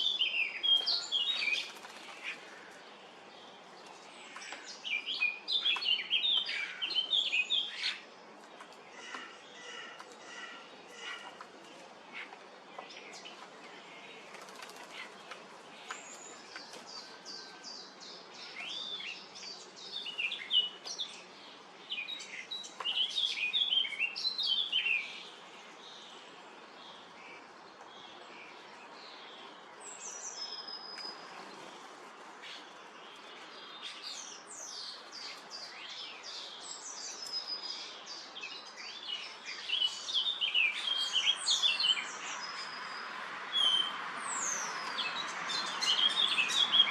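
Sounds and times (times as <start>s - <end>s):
bird wingbeats: 14.2s - 15.5s.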